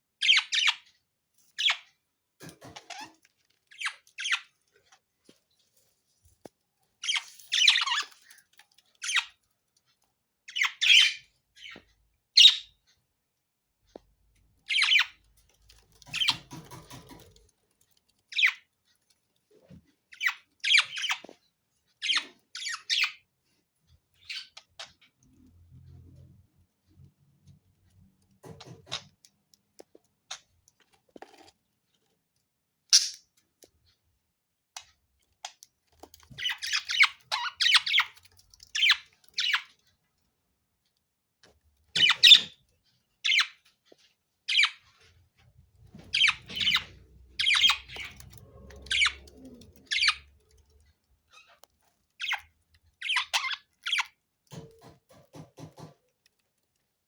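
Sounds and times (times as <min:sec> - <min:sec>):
budgerigars chirping and squawking: 0:00.2 - 0:00.9, 0:07.0 - 0:08.2, 0:10.5 - 0:11.8, 0:12.4 - 0:12.7, 0:14.7 - 0:17.3, 0:20.2 - 0:21.3, 0:22.0 - 0:23.2, 0:32.9 - 0:33.2, 0:36.3 - 0:39.8, 0:42.0 - 0:42.6, 0:43.2 - 0:43.6, 0:44.5 - 0:45.0, 0:45.9 - 0:50.7, 0:51.3 - 0:56.0.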